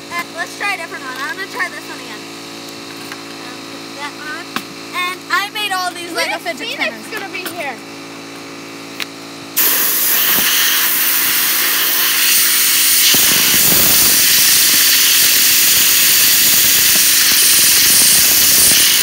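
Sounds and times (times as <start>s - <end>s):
compressed air hissing: 9.6s - 19.0s.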